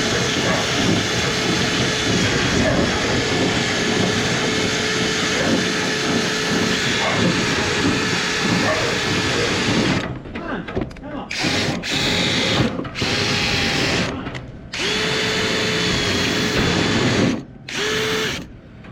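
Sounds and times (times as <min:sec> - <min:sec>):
motor hum: 0:00.0 - 0:10.0, 0:11.3 - 0:18.6.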